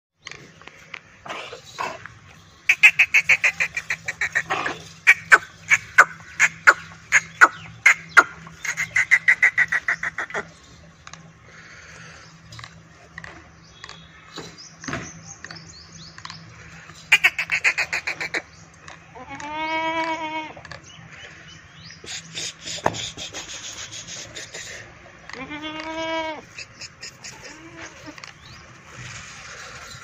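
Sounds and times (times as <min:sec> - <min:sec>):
bird calling in rapid notes: 0:02.6 - 0:10.6, 0:17.0 - 0:18.6.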